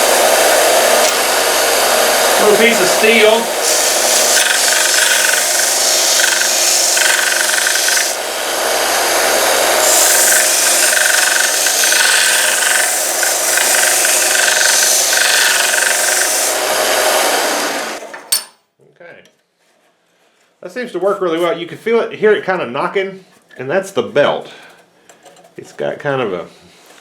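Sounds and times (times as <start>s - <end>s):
abrasive belt grinding metal: 0.0s - 18.1s
belt sander motor whine: 0.0s - 18.2s.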